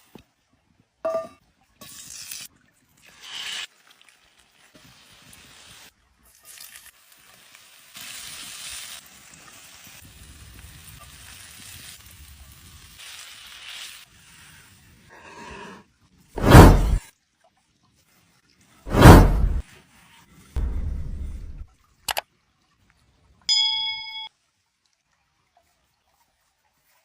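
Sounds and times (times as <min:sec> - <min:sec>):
chicken sizzling as it fries: 0:01.8 - 0:15.1.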